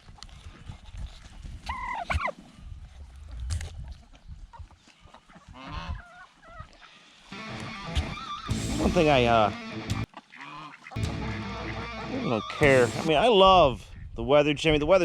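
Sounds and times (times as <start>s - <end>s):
poultry honking calls: 5.4s - 6.3s, 7.3s - 13.3s.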